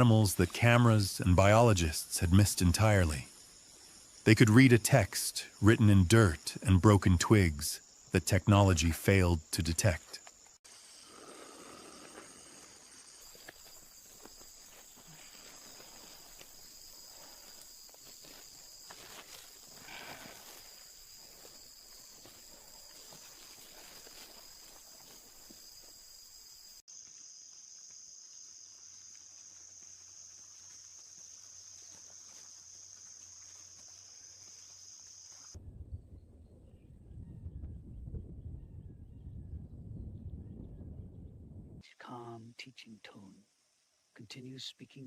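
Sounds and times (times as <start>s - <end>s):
insects trilling: 0.0s - 35.6s
insect drone: 0.0s - 36.0s, 42.0s - 45.0s.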